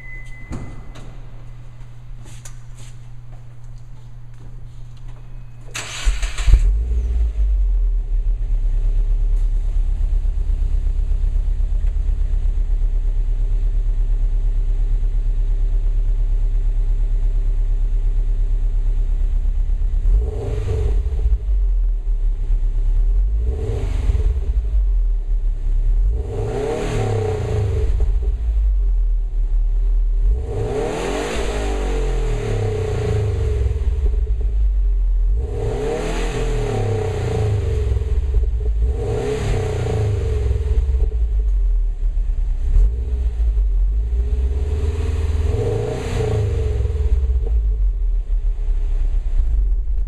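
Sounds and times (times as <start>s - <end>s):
car engine starting and idling: 0.0s - 50.0s
car engine revving: 5.8s - 15.3s, 19.8s - 50.0s.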